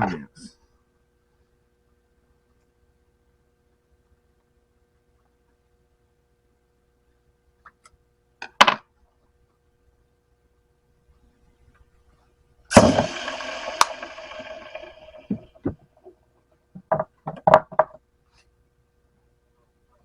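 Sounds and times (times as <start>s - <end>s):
metal clang ringing: 12.7s - 15.6s
sharp metal clacks and knocks: 12.7s - 15.6s.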